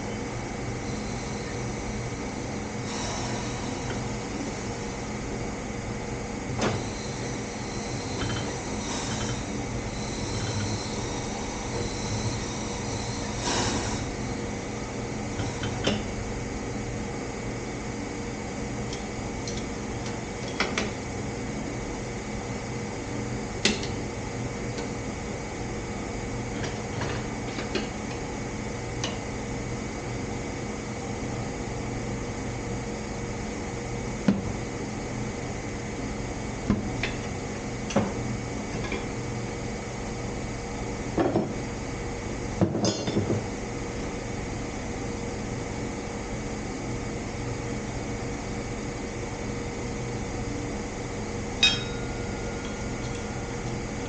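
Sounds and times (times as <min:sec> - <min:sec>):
shop fan humming: 0:00.0 - 0:54.0
metallic tool clinks: 0:51.6 - 0:53.2.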